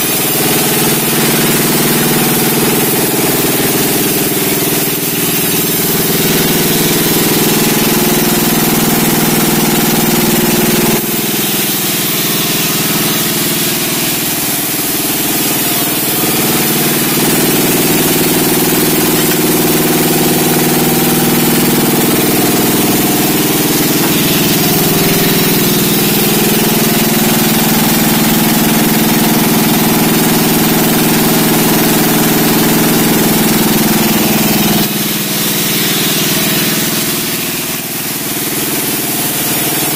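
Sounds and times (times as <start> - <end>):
high saw hiss: 0.0 - 29.4
sawmill engine drone: 0.0 - 39.9.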